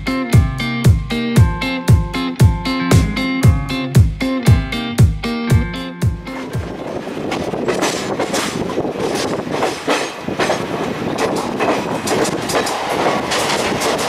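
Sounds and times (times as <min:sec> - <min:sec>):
train rumbling along track: 0:06.0 - 0:14.0
wheels clacking over rail joints: 0:06.4 - 0:14.0.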